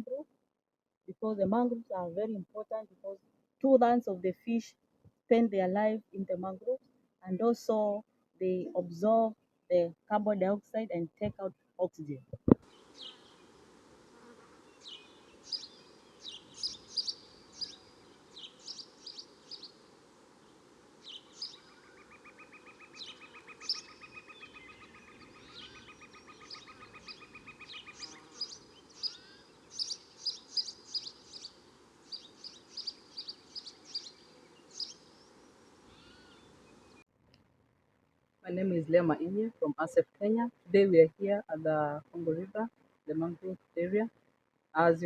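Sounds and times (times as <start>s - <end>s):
birds chirping: 11.3s - 37.1s.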